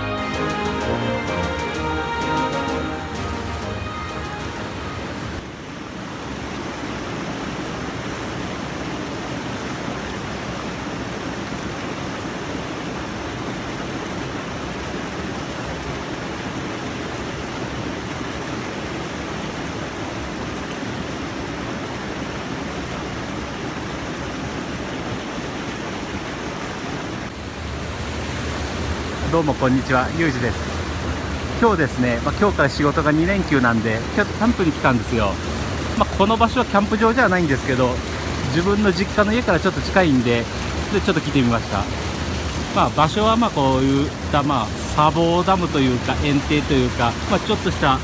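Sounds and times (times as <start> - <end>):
background music: 0.0 - 5.4
stream water rushing over weir: 0.0 - 48.0.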